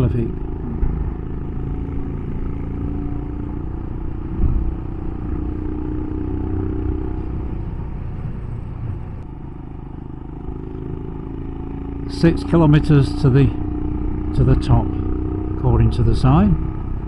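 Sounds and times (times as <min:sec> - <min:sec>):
low rumble: 0:00.0 - 0:09.6
motorcycle engine running: 0:00.0 - 0:17.0
loud bump: 0:00.6 - 0:01.6.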